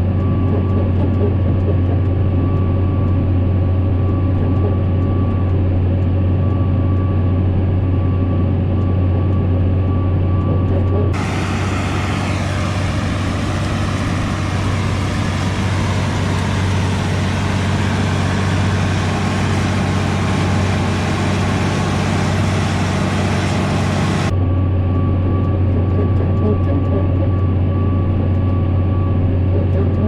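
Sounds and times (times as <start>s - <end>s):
tractor engine running: 11.2s - 24.3s.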